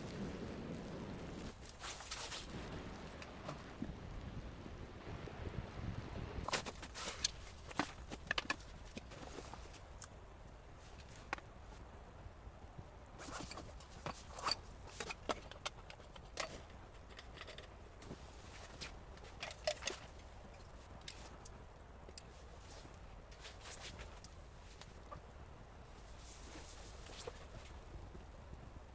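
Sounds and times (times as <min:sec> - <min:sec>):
gear clicking and rustling: 0:06.4 - 0:11.8, 0:13.0 - 0:28.9.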